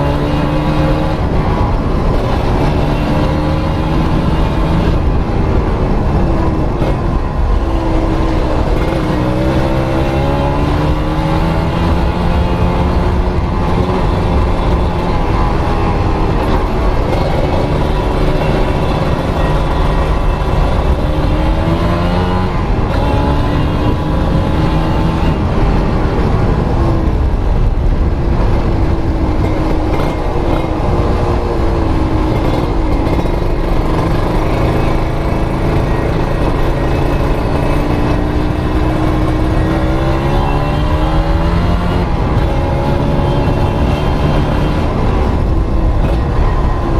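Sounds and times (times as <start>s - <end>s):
two-stroke engine revving: 6.7s - 25.9s, 29.4s - 46.9s.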